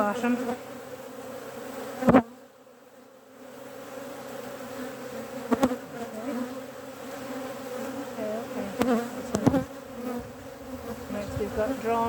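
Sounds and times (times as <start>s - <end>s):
honeybees buzzing: 0.0s - 12.0s
knock on wooden hive frames: 8.6s - 12.0s.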